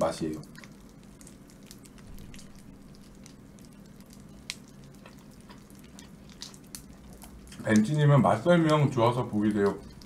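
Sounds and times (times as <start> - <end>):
person chewing crispy food: 0.4 - 8.0, 8.7 - 10.0.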